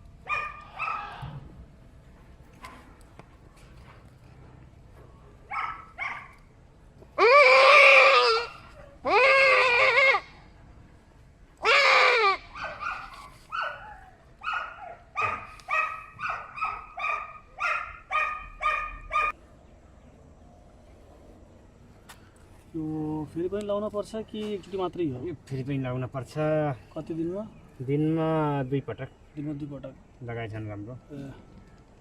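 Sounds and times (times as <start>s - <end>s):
goat bleating: 7.2s - 10.4s, 11.6s - 12.5s.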